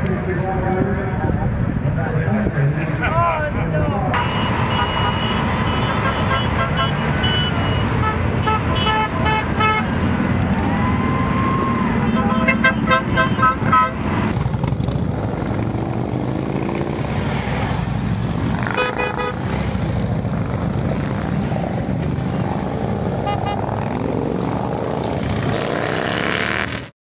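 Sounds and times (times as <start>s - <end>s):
horn toot: 4.2s - 10.0s, 12.0s - 14.1s, 18.6s - 19.6s, 23.1s - 24.0s
motorcycle engines running: 14.3s - 26.9s.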